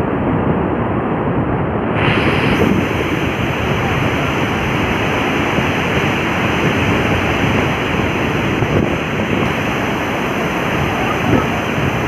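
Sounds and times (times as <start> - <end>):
floodwater rushing: 2.0 - 12.0.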